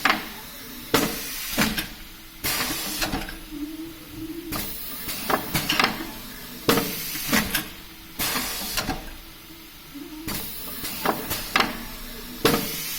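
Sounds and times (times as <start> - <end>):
machine clicks and clacks: 0.0 - 3.4, 4.5 - 9.3, 10.3 - 12.9
faint steady hum: 0.0 - 12.9
packaging machine hissing bursts: 0.0 - 12.9.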